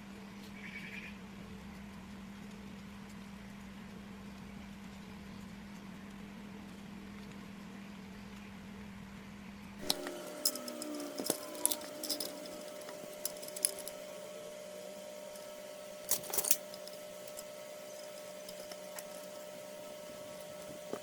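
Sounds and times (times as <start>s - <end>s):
faint steady hum: 0.0s - 21.0s
metal parts and tools clinking: 9.8s - 21.0s.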